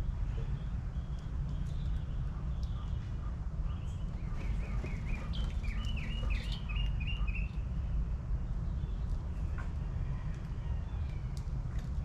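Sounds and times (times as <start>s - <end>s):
songbird chirping: 0.4s - 7.8s.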